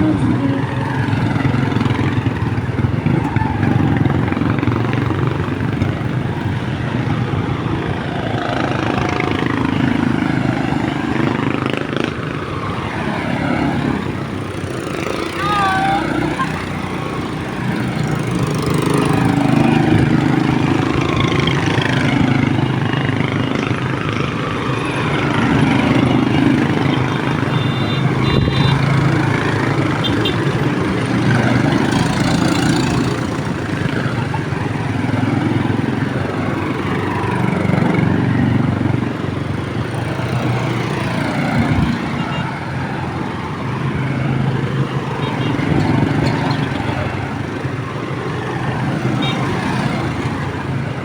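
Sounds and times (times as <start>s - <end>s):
motorcycle engines passing: 0.0s - 51.0s
short high beeps: 27.5s - 28.8s.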